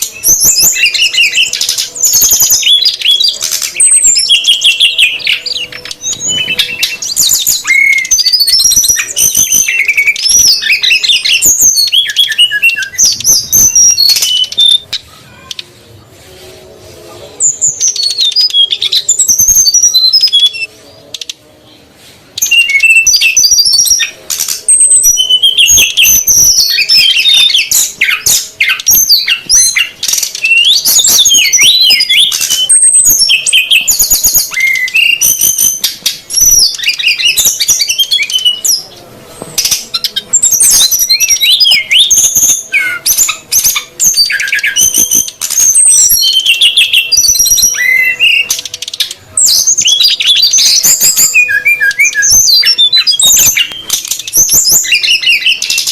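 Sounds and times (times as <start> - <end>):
birds chirping and trilling: 0.0 - 55.9.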